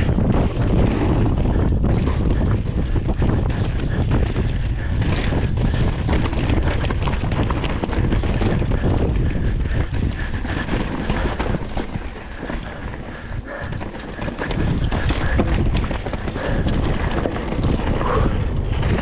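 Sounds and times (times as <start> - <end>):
mountain bike rattling on rough trail: 0.0 - 19.0
wind rumble on microphone: 0.0 - 19.0.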